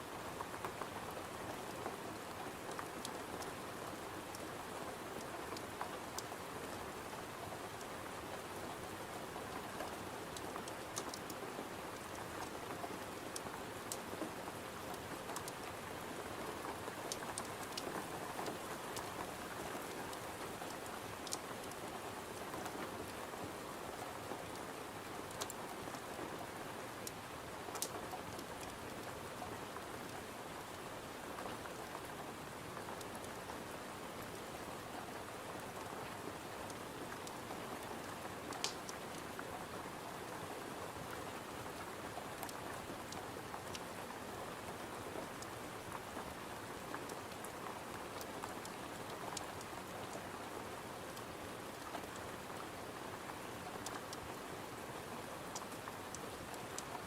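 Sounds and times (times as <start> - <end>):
rain pattering on window: 0.1 - 57.0
faint sharp ticks: 25.3 - 25.9, 27.0 - 29.1, 38.5 - 38.9.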